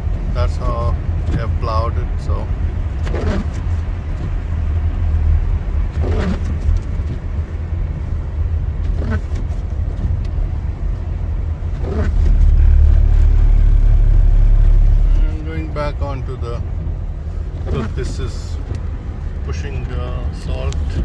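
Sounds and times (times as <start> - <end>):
car tyres and engine rumble: 0.0 - 21.0.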